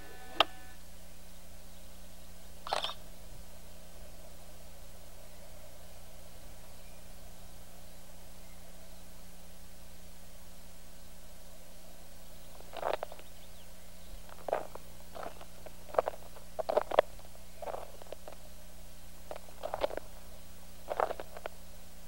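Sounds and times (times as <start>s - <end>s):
faint steady hum: 0.0s - 22.0s
tape hiss: 0.0s - 22.0s
footsteps crunching through leaves: 12.5s - 18.5s, 19.1s - 21.6s.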